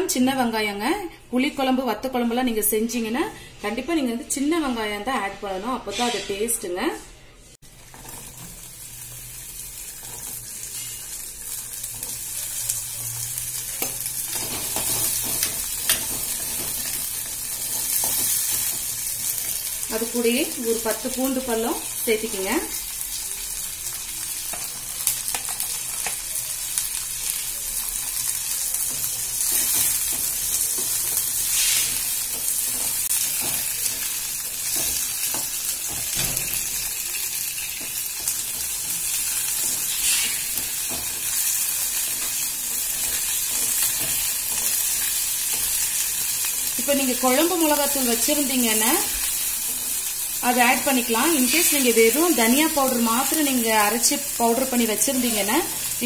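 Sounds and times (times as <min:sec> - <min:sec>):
onions sizzling in oil: 0:07.6 - 0:56.0
ladle scraping pan: 0:39.7 - 0:40.6.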